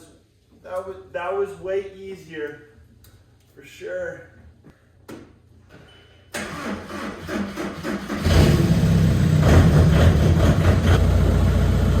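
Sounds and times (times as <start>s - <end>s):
car engine starting and idling: 6.3s - 12.0s.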